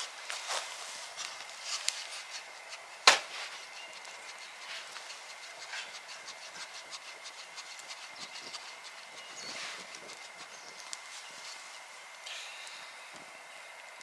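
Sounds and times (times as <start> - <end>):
sharp knock: 3.0 - 3.4.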